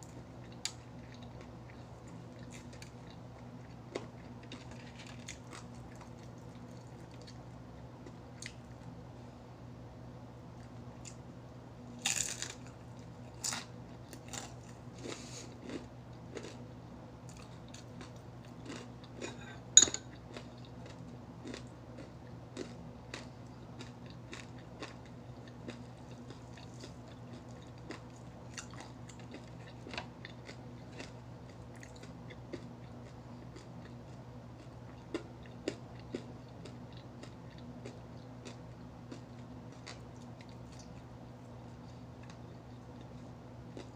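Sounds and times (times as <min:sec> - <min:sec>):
low steady hum: 0:00.0 - 0:43.9
chewing: 0:00.1 - 0:08.9, 0:12.1 - 0:16.6, 0:17.2 - 0:43.9
crunching bites of fried chicken: 0:12.0 - 0:16.7
sharp ringing clink: 0:19.8 - 0:20.0.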